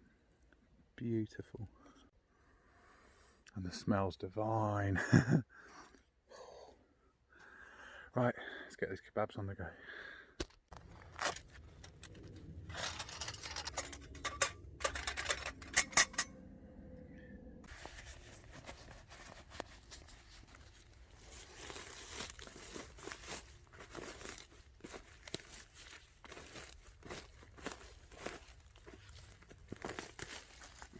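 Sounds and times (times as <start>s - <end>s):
rustling and crinkling handling: 10.7s - 16.2s, 17.6s - 30.9s.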